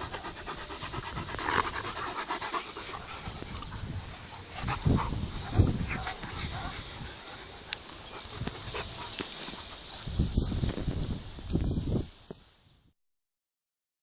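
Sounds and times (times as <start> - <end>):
dog noises: 0.0 - 10.6
rustling: 0.0 - 12.5.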